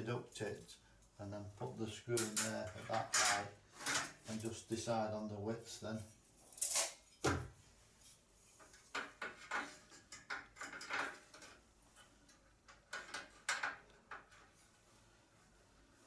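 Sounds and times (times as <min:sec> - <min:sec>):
parts and tools clattering: 0:02.2 - 0:04.2, 0:08.8 - 0:11.7.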